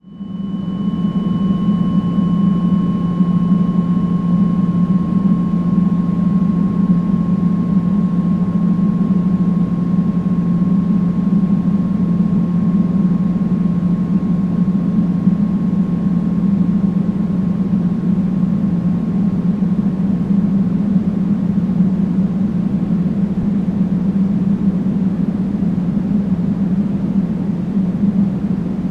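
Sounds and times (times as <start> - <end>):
faint whistle-like tone: 0.0 - 7.4.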